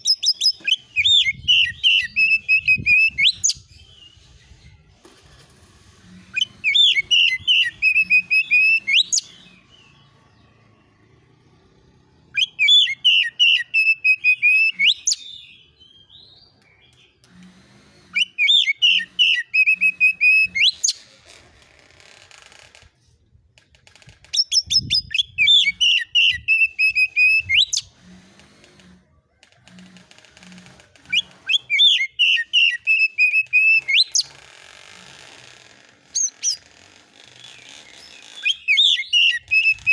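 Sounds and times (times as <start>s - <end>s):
bird singing whistled notes: 0.0s - 4.3s, 6.4s - 10.0s, 12.4s - 16.4s, 18.2s - 21.0s, 24.4s - 27.8s, 31.1s - 34.3s, 38.2s - 39.9s.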